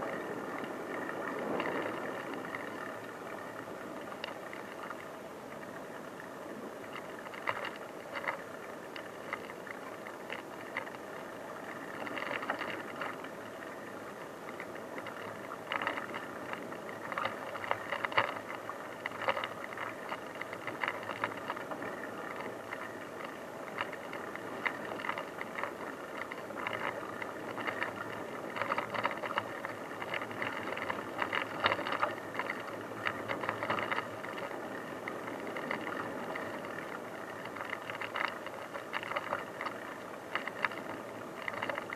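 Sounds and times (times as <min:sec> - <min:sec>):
bicycle tyres on dirt track: 0:00.0 - 0:05.7, 0:06.5 - 0:41.9.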